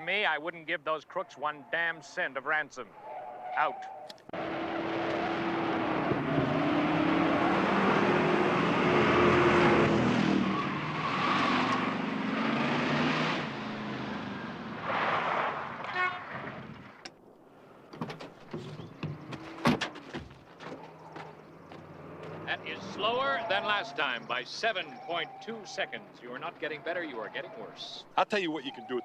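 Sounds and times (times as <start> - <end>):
vehicle engine revving: 4.3 - 15.8, 20.8 - 26.6
tyre noise: 17.9 - 24.2.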